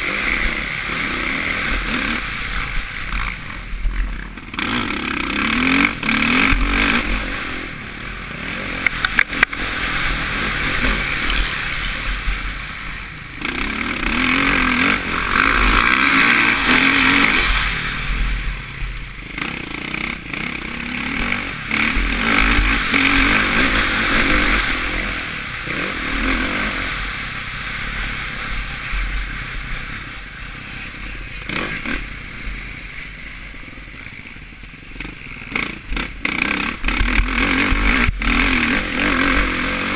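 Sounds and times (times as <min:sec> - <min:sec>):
motocross bike engine revving: 0:00.0 - 0:39.9
sharp clicks: 0:08.8 - 0:09.6.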